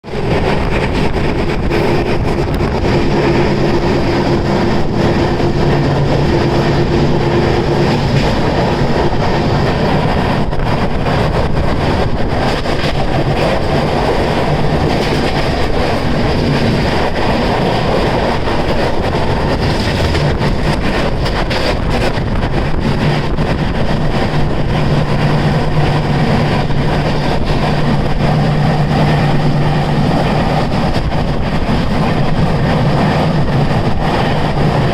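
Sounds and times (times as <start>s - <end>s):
vehicle running noise: 0.0s - 34.9s.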